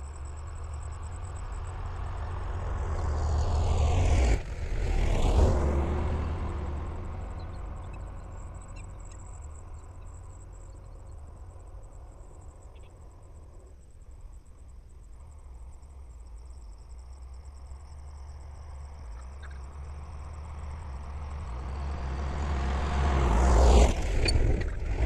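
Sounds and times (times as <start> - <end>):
vehicle engine passing by: 0.0 - 12.5, 17.9 - 25.0
crickets chirping: 0.0 - 25.0.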